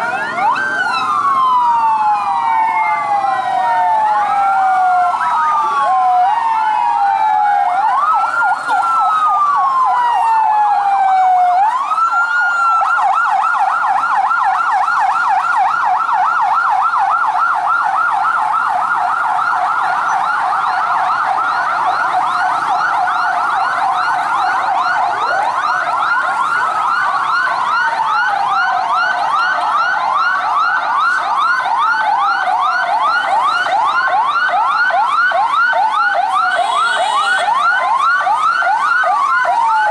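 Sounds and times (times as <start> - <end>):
fast yelping sirens: 0.0 - 39.9
wailing sirens: 0.0 - 39.9.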